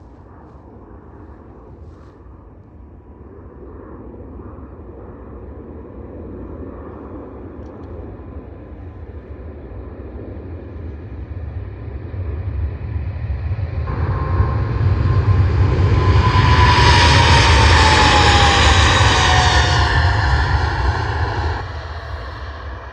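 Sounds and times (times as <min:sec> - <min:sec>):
jet engine rumble: 0:00.0 - 0:22.9
high engine whine: 0:11.0 - 0:22.9.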